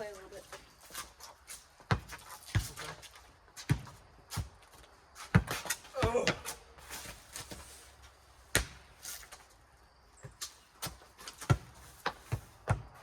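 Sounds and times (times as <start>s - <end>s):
ball bouncing and being hit: 1.9s - 3.0s, 3.6s - 4.6s, 5.2s - 6.6s, 8.5s - 9.0s, 10.2s - 13.0s.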